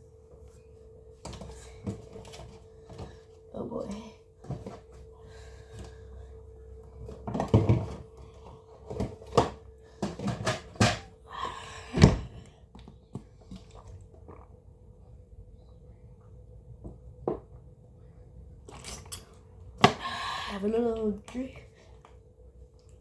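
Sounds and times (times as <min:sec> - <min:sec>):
steady hum: 0:00.0 - 0:23.0
items being set down: 0:06.9 - 0:11.1.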